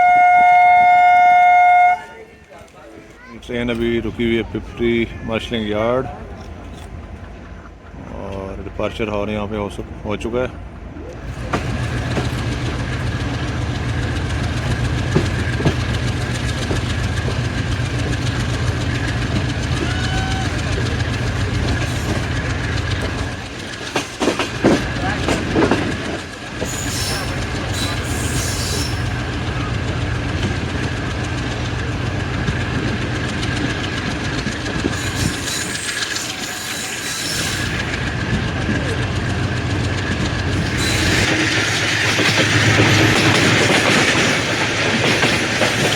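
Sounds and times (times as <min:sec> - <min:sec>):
diesel locomotive rumble: 0:00.0 - 0:45.9.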